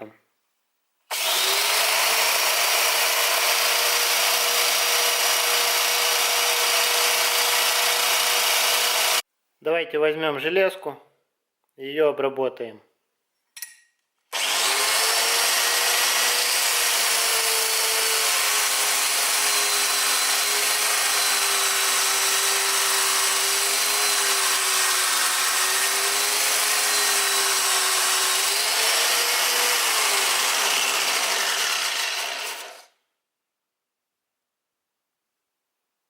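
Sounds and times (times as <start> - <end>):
belt grinder motor hum: 1.1 - 9.2, 14.3 - 32.9
abrasive belt hissing on steel: 23.2 - 25.7.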